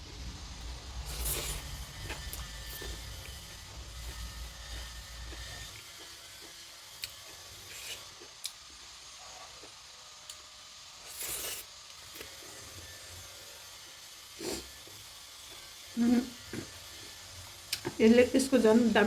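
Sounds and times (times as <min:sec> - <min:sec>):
food crunching: 0:00.6 - 0:08.7.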